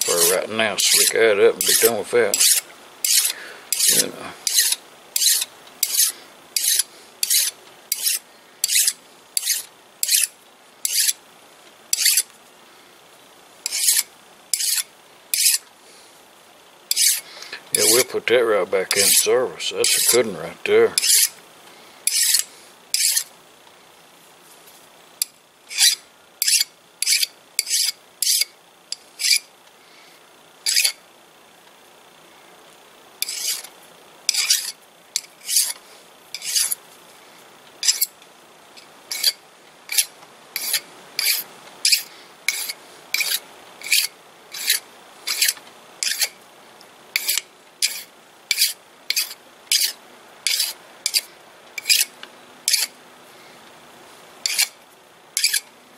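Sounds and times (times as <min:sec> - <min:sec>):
hand file rasping on metal: 0:00.0 - 0:11.2, 0:12.0 - 0:12.3, 0:13.7 - 0:15.6, 0:16.9 - 0:17.2, 0:18.9 - 0:20.3, 0:21.0 - 0:21.4, 0:22.1 - 0:23.3, 0:25.7 - 0:28.5, 0:30.7 - 0:31.0, 0:33.2 - 0:33.7, 0:34.3 - 0:34.8, 0:35.4 - 0:35.8, 0:36.4 - 0:36.8, 0:37.8 - 0:38.1, 0:39.1 - 0:46.3, 0:47.2 - 0:52.1, 0:52.7 - 0:52.9, 0:54.4 - 0:54.7, 0:55.4 - 0:55.6.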